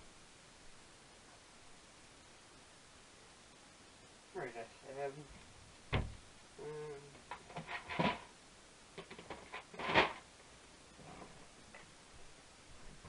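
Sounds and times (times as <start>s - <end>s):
rummaging clicks and rustles: 7.2s - 8.3s, 9.0s - 10.3s.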